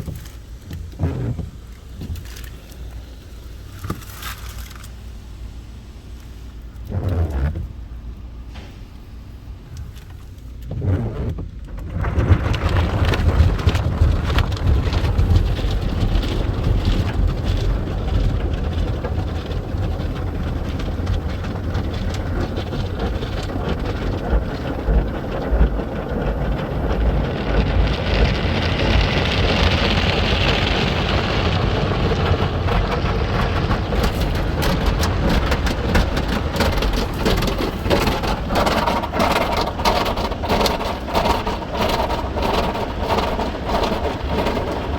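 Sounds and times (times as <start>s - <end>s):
car wash spraying water: 0.0s - 44.9s
low rumble: 10.8s - 44.9s.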